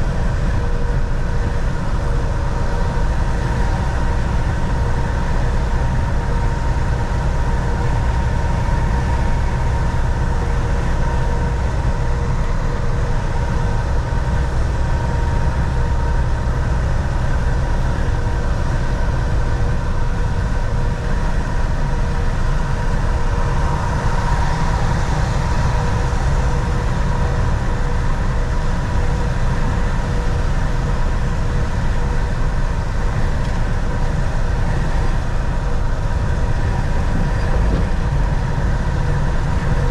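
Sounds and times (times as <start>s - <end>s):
faint steady whine: 0.0s - 39.9s
road noise: 0.0s - 39.9s
truck engine drone: 0.0s - 39.9s.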